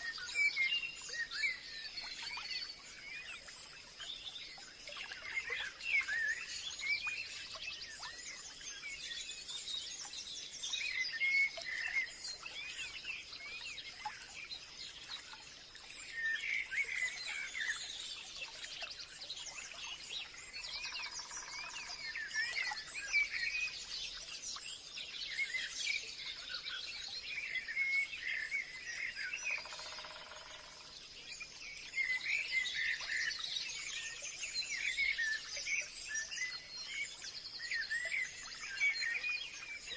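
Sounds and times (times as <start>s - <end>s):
birds chirping and twittering: 0.0s - 39.9s.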